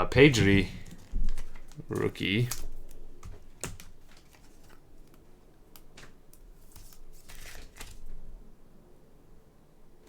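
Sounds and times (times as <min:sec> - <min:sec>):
trading cards flipped and rustling: 0:00.2 - 0:08.2.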